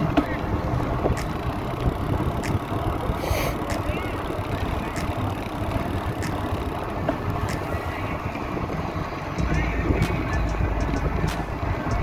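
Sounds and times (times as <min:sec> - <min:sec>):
road and wind rumble: 0:00.0 - 0:12.0
light ticking: 0:00.8 - 0:07.7.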